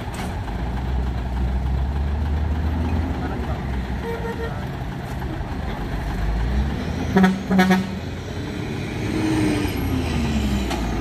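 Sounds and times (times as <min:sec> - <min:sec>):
truck engines rumbling: 0:00.0 - 0:11.0
horn toots: 0:04.0 - 0:04.7, 0:07.1 - 0:08.0.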